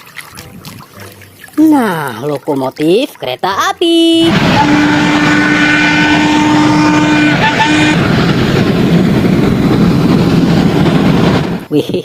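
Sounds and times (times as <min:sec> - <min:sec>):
locomotive horn: 0:04.2 - 0:08.5
loud steady rumbling: 0:04.2 - 0:11.7.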